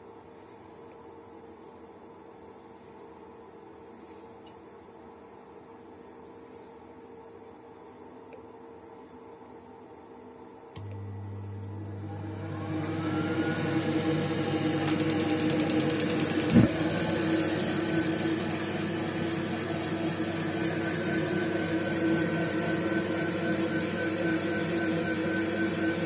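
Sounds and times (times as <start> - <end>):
boiler running steadily: 10.7 - 26.0
gas boiler whir: 10.7 - 26.0
rapid clicking: 14.8 - 18.8.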